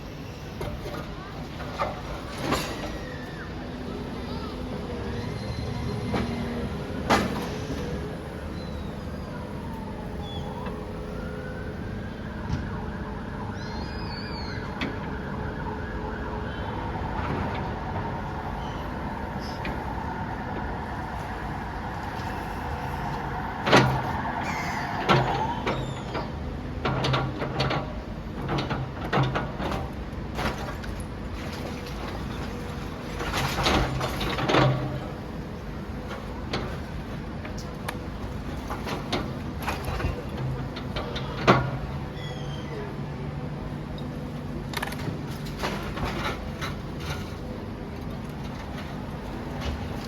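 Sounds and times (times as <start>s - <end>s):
demolition machinery running: 0.1s - 50.0s.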